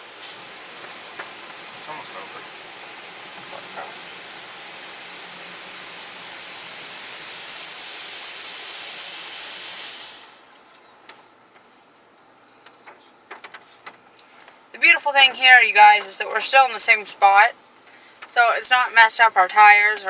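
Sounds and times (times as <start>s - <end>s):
car wash water spray hissing: 0.0s - 10.6s, 13.7s - 20.0s.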